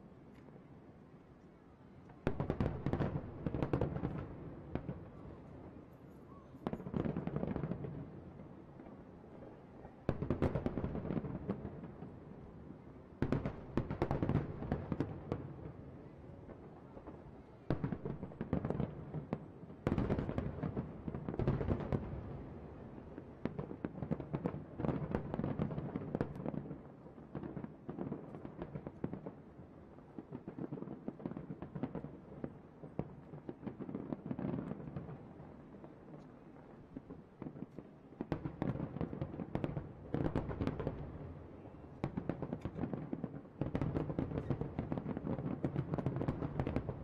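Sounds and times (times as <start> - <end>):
fireworks bursting and crackling: 2.2 - 5.7, 13.2 - 47.0.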